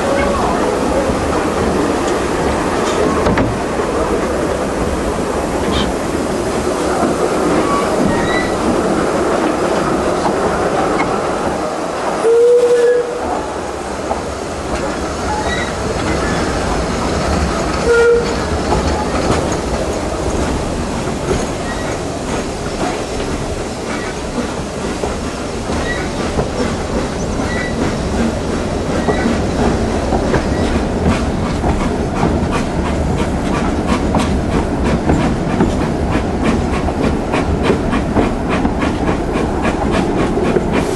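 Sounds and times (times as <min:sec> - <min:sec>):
steam train wheels clattering on rails: 0:00.0 - 0:40.9
steam train whistle blasts: 0:12.2 - 0:13.2, 0:17.8 - 0:18.4.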